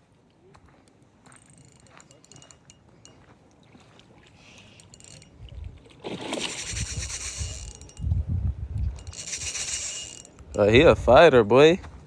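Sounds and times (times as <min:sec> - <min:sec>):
rod and reel handling rumbles: 0:00.9 - 0:03.2, 0:04.4 - 0:11.4
fish splashing at water surface: 0:05.8 - 0:07.5.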